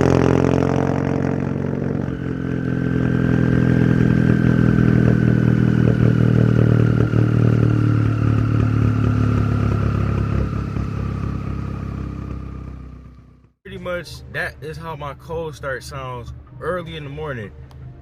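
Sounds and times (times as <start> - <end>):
turbo whine: 0.0 - 13.5.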